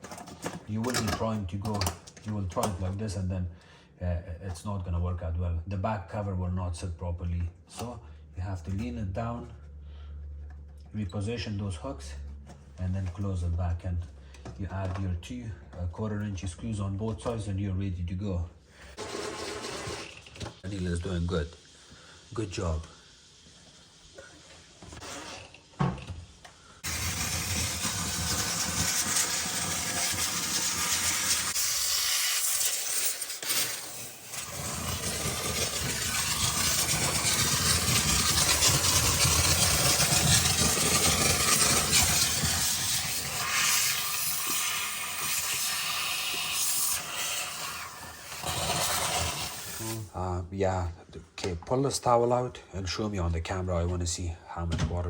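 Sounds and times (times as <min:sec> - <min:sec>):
steamer hissing: 0:19.0 - 0:50.1.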